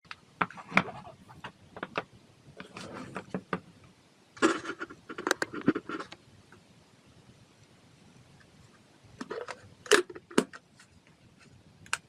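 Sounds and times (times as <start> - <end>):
objects scraping: 2.6 - 3.4.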